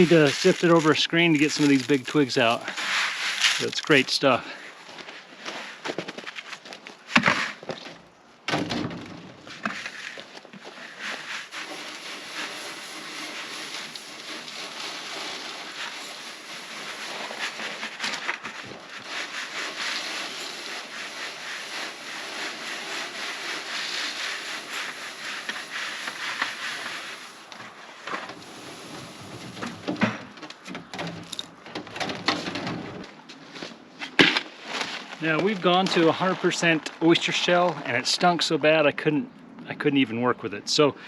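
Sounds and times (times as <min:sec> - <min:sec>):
seeds rustling over mesh: 0:00.0 - 0:04.4, 0:10.7 - 0:27.5.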